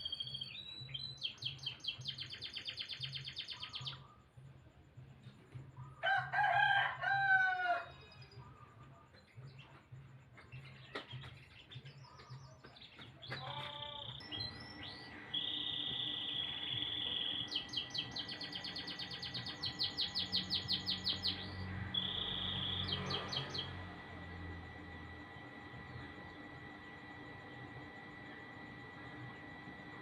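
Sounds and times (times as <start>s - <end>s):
canary singing: 0.0s - 4.1s, 10.6s - 30.0s.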